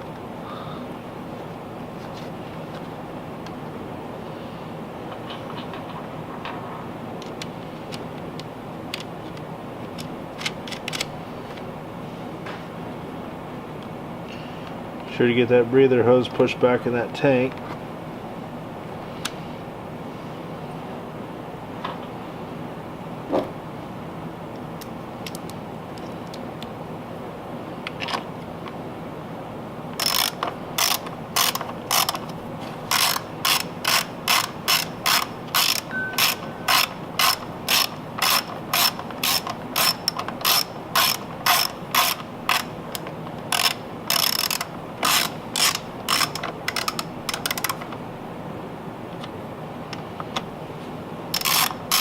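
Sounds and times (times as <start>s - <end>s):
hand ratchet clicking: 30.0s - 47.9s, 51.3s - 52.0s.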